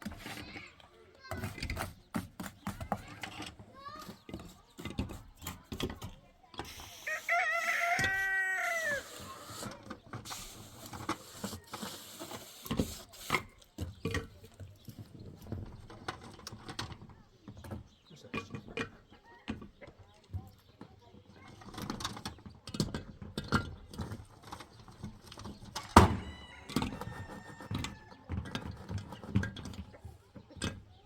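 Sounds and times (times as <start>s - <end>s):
rooster crowing: 7.0s - 9.3s, 26.1s - 28.2s.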